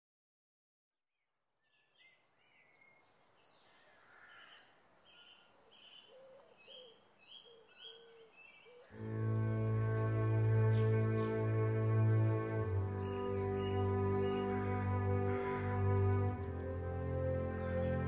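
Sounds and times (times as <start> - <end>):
soft outdoor background: 1.0 - 18.0
birds chirping: 1.7 - 18.0.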